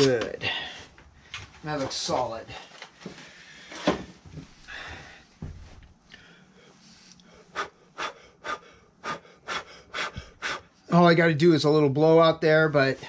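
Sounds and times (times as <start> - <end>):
short puffs of blown air: 7.0 - 10.7.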